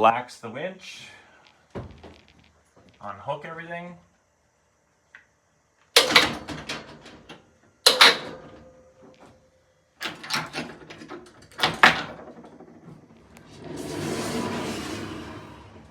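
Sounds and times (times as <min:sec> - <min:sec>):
clattering rattling knocks: 0:06.0 - 0:09.2, 0:10.0 - 0:13.2.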